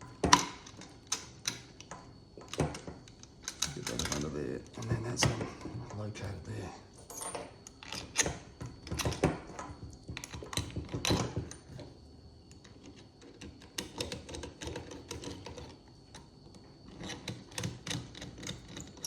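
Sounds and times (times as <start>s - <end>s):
small metal parts clicking: 0.3s - 4.9s.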